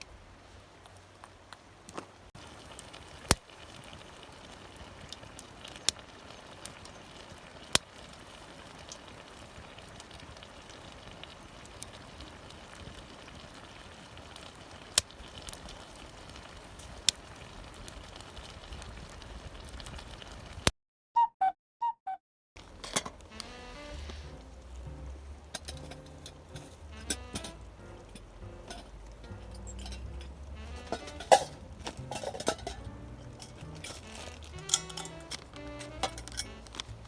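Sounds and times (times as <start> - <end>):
wood fire crackling: 0.0 - 20.7, 22.6 - 37.0
short tones: 23.3 - 25.1, 34.0 - 36.9.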